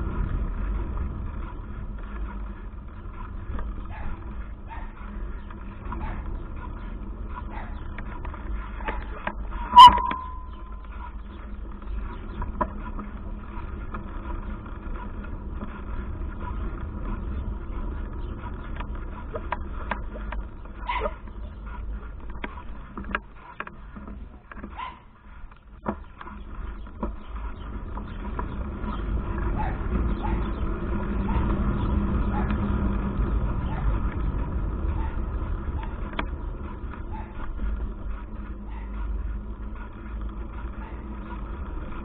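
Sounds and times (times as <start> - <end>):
bicycle rattling clicks and knocks: 0.0 - 42.0
wind buffeting microphone: 25.6 - 42.0.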